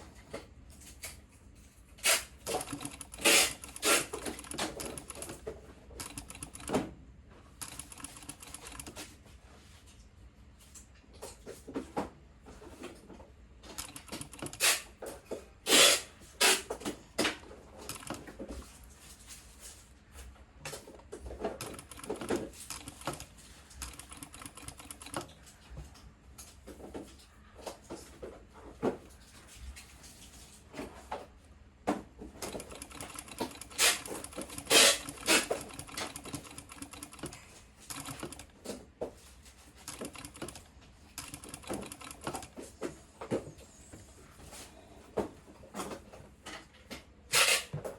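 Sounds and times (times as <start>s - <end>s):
sewing machine stitching: 2.0s - 6.8s, 21.6s - 25.4s, 32.4s - 38.8s, 39.8s - 42.6s.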